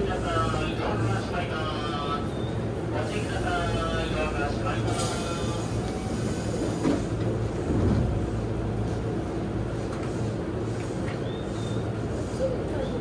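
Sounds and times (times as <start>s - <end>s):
bustle of passengers boarding: 0.0s - 13.0s
train low hum: 0.0s - 13.0s.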